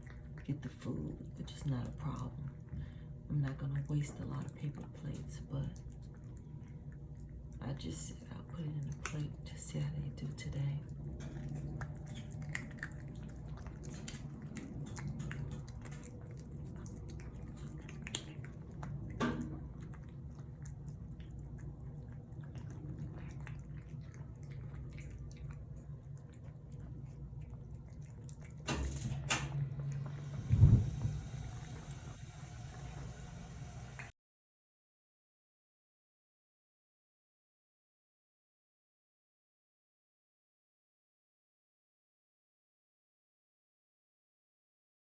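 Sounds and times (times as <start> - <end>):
cats chewing wet food: 0.0 - 28.7, 29.5 - 34.1
steady low hum: 0.0 - 34.1.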